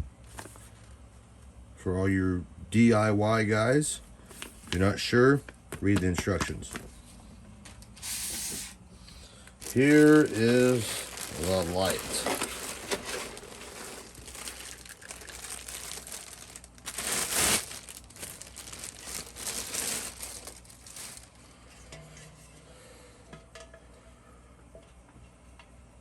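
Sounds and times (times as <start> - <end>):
packaging crinkling and rustling: 9.5 - 21.4.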